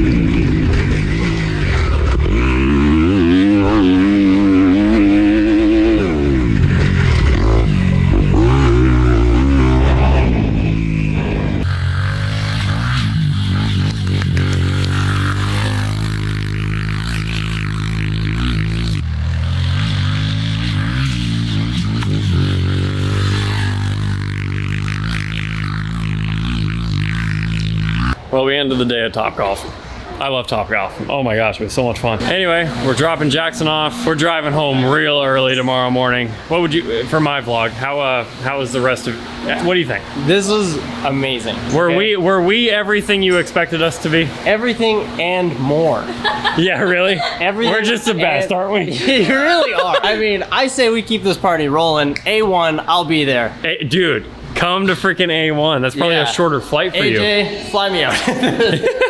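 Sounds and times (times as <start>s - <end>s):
dirt bike engine revving: 0.0s - 28.3s, 32.2s - 48.0s.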